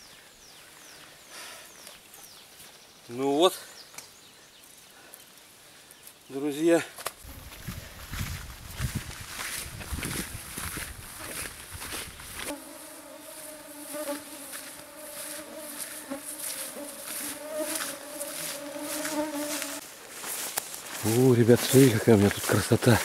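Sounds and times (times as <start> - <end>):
flying insect buzzing: 12.3 - 19.8.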